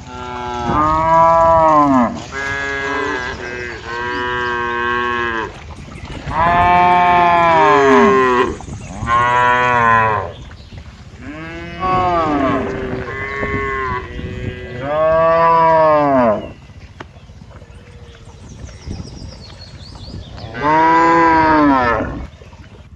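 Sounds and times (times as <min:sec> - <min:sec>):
cattle mooing: 0:00.0 - 0:05.6, 0:06.2 - 0:10.4, 0:11.2 - 0:16.5, 0:20.5 - 0:22.2.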